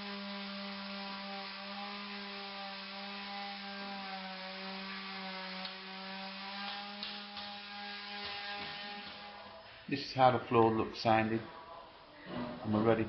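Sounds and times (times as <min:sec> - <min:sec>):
floor sander motor whining: 0:00.0 - 0:09.4.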